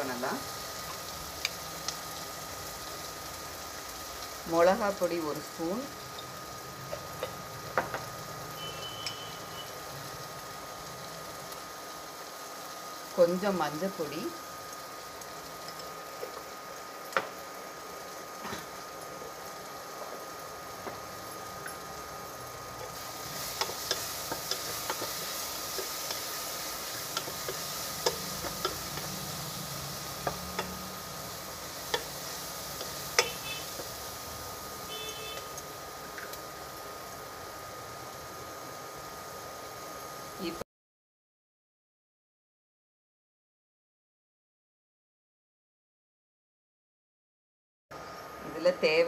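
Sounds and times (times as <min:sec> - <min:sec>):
onions sizzling in oil: 0:00.0 - 0:40.6
spatula knocking and scraping pan: 0:27.0 - 0:29.3, 0:30.2 - 0:30.9.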